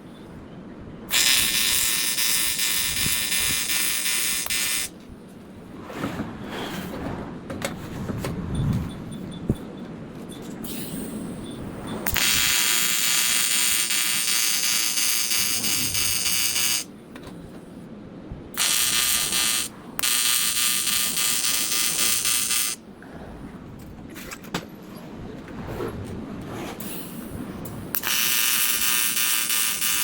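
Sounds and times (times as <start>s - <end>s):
welding arc buzzing: 1.1s - 4.9s, 12.1s - 16.9s, 18.6s - 22.8s, 27.9s - 30.0s.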